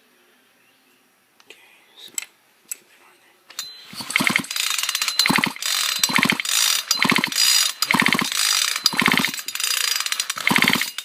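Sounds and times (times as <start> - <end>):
chainsaw recoil starter ratcheting: 3.9 - 11.0.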